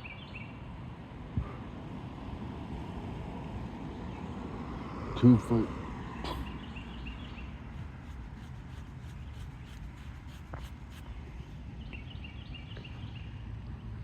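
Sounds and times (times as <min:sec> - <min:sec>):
bird chirping: 0:06.2 - 0:13.4.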